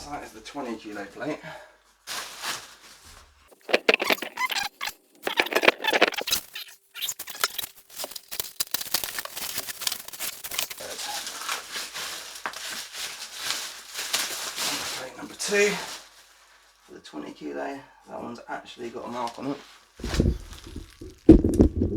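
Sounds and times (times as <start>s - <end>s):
packaging tearing and rustling: 3.5s - 16.4s, 19.8s - 21.8s.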